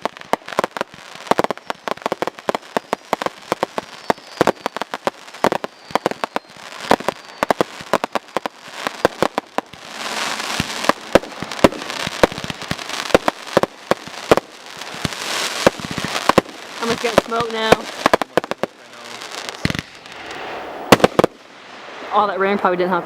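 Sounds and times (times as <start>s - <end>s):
fireworks crackling hiss: 0.0s - 22.8s
fireworks bangs: 0.0s - 23.0s.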